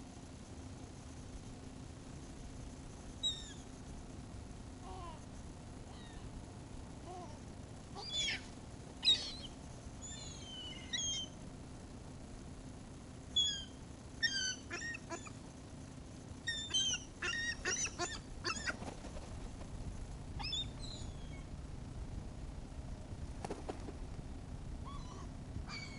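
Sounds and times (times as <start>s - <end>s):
seagulls calling: 8.0s - 11.4s, 13.4s - 15.4s, 16.5s - 18.8s.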